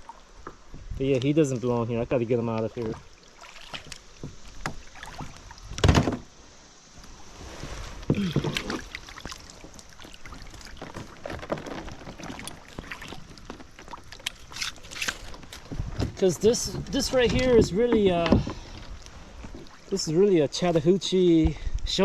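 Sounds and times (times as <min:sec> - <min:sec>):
loud thump on kayak: 0:05.8 - 0:06.3.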